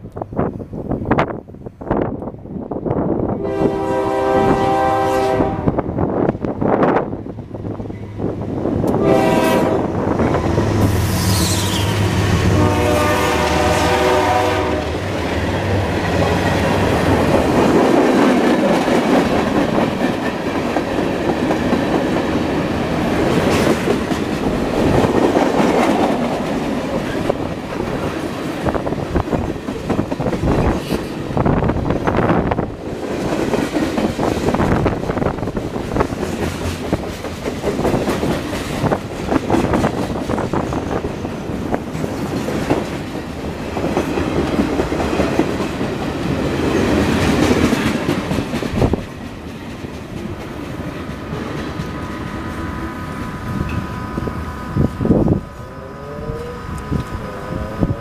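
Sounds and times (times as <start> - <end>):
locomotive chime horn: 3.4 - 5.7, 9.0 - 9.9, 12.5 - 14.9
wheels clacking over rail joints: 15.0 - 52.6
locomotive engines droning: 50.0 - 58.0.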